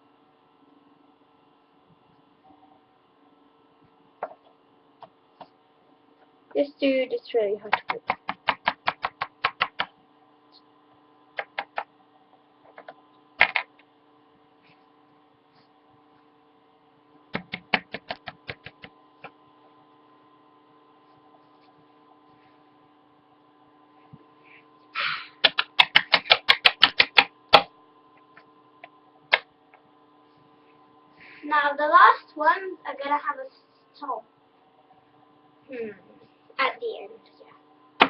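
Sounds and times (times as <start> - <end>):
plastic toy tapping on hard surface: 7.7 - 9.9, 11.4 - 11.9, 17.3 - 18.9, 25.4 - 27.7.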